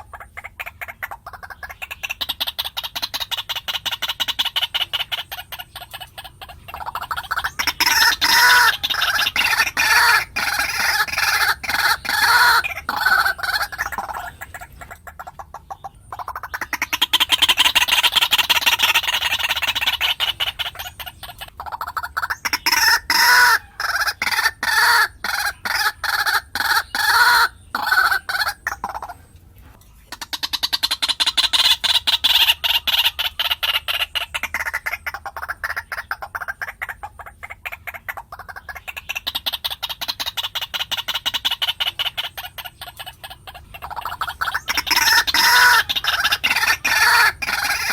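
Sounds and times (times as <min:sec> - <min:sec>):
waterhen calling harsh notes: 0:00.0 - 0:47.9.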